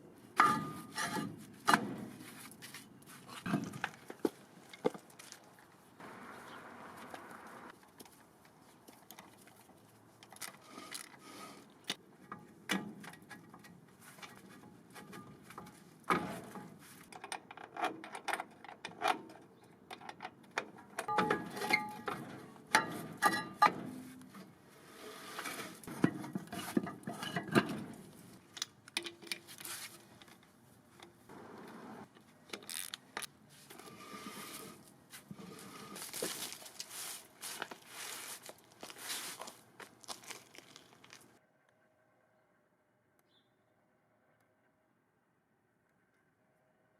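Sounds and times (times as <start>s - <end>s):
metal tools clinking and knocking: 21.0s - 24.2s.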